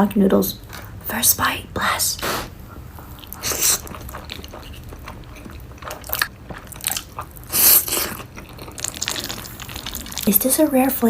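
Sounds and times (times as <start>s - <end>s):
close chewing noodles: 2.3s - 10.7s.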